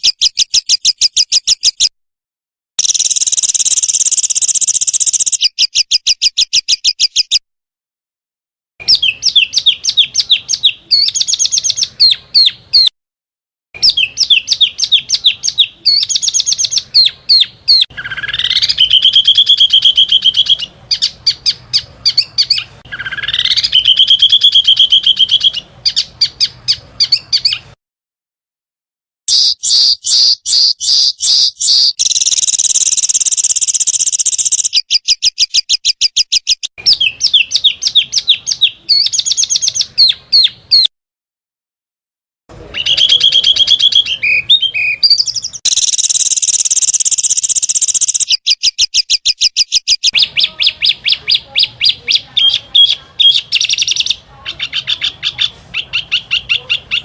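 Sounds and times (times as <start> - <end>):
songbirds singing rapid trills: 0.0 - 1.9, 2.8 - 7.4, 8.8 - 12.9, 13.8 - 27.6, 29.3 - 40.9, 42.8 - 57.0.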